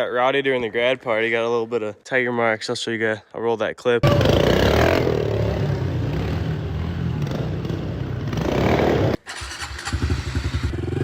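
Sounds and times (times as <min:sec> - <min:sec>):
dirt bike engine revving: 0:04.0 - 0:11.0.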